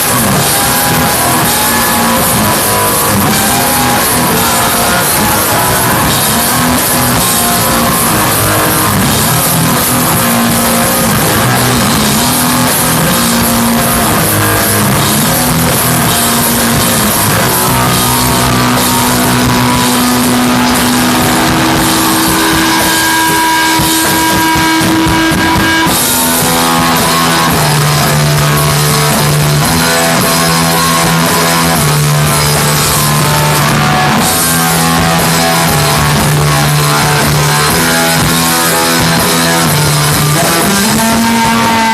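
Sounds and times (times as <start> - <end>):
rock band playing live: 0.0 - 41.9
held electric guitar note: 15.5 - 41.9.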